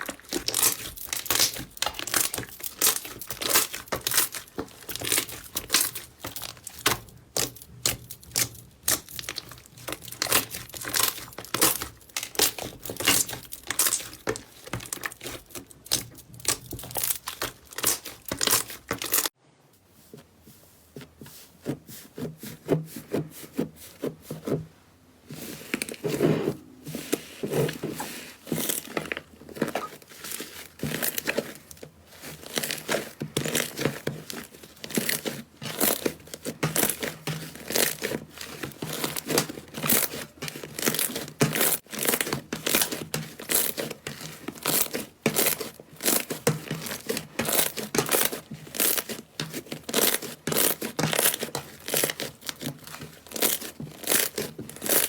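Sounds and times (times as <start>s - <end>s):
slime crackling and popping: 0.0s - 19.4s, 44.6s - 55.0s.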